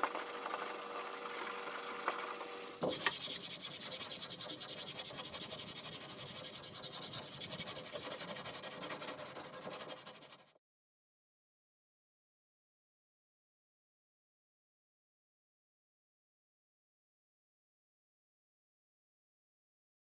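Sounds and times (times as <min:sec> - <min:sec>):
hand sanding strokes: 0:00.6 - 0:10.6.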